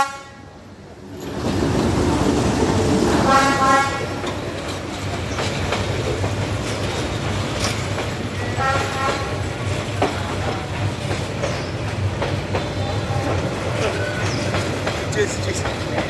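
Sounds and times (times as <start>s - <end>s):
train horn blast: 0.0s - 0.5s, 3.2s - 4.2s, 8.5s - 9.4s
diesel locomotive engine rumbling: 0.0s - 16.0s
wheel clatter on rails: 1.1s - 16.0s.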